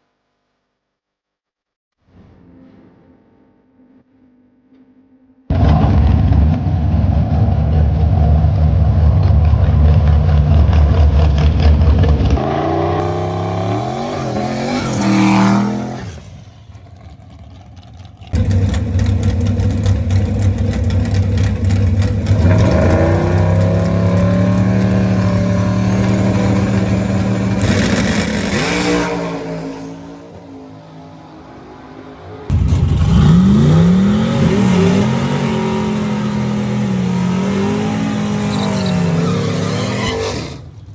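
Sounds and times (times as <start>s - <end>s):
drag car engine revving: 5.5s - 31.8s, 32.5s - 40.9s.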